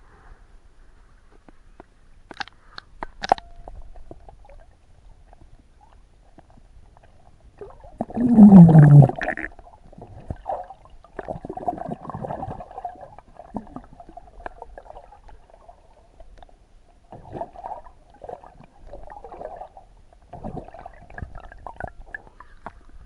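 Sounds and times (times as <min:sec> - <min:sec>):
sea water sloshing and lapping: 0:06.4 - 0:23.0.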